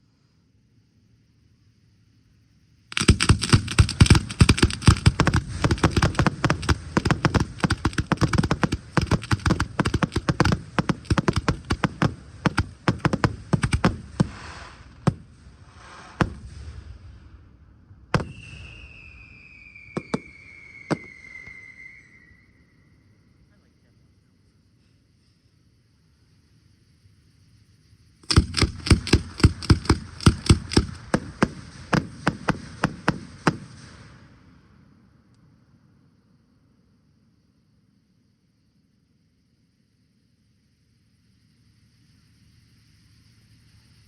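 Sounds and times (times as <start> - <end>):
fireworks bangs: 2.9 - 22.3, 28.2 - 34.6
falling whistling tone: 18.2 - 23.4.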